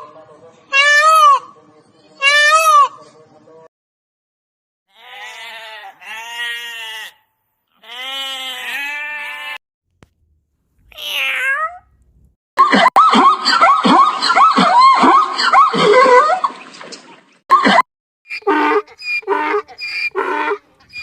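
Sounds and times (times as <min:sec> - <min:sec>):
animal bleating: 0:04.9 - 0:09.6.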